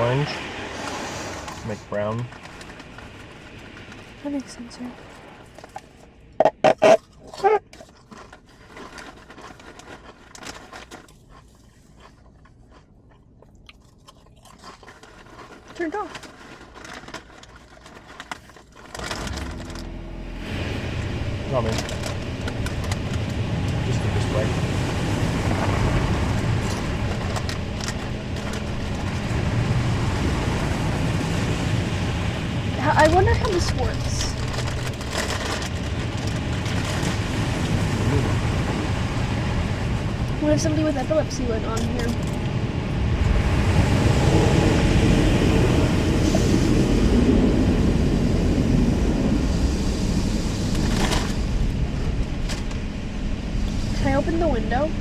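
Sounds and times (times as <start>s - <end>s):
car wash equipment rumbling: 0.0s - 10.9s, 15.0s - 55.0s
hiss: 0.7s - 1.7s
patchy noise: 14.8s - 55.0s.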